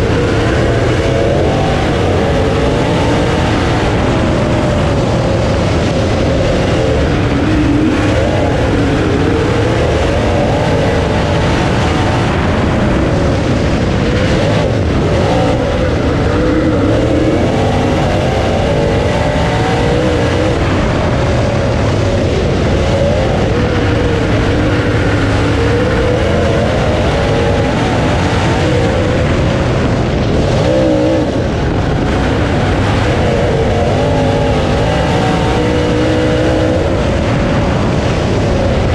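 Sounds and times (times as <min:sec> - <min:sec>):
heavy rush of noise: 0:00.0 - 0:38.9
race car engine revving: 0:00.0 - 0:38.9.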